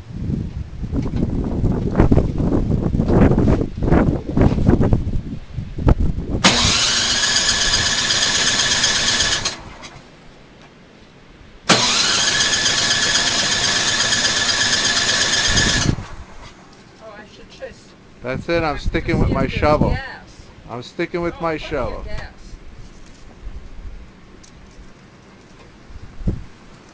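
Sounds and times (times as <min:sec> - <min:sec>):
electric starter cranking engine: 0:06.4 - 0:10.0, 0:11.7 - 0:16.5.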